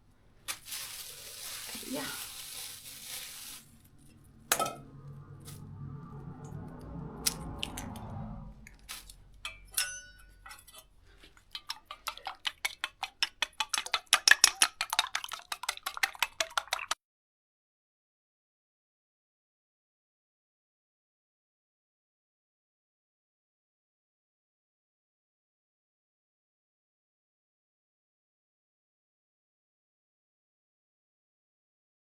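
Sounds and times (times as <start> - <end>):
cookware clinking: 4.5 - 4.8, 9.4 - 10.9
utensil beating eggs in bowl: 11.2 - 17.0.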